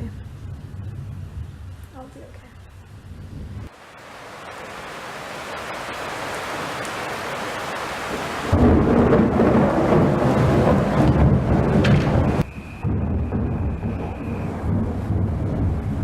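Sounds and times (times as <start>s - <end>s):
heavy rain: 0.0s - 16.0s
rolling thunder boom: 8.4s - 16.0s.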